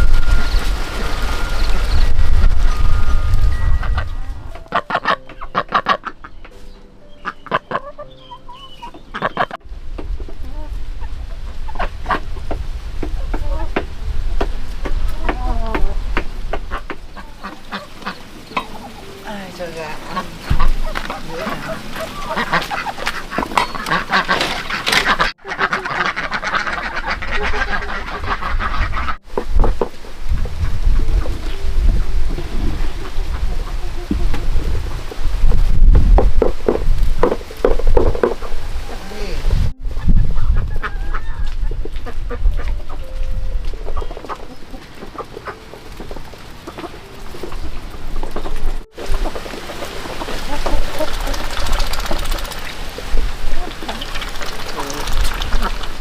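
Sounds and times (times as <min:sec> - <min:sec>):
faint high chirps: 0:00.0 - 0:04.6
low rumble: 0:00.0 - 0:04.7
chickens clucking: 0:00.0 - 0:13.9, 0:14.9 - 0:56.0
ducks quacking: 0:03.8 - 0:09.6, 0:16.5 - 0:29.2, 0:32.3 - 0:35.1, 0:38.2 - 0:52.7, 0:53.4 - 0:56.0.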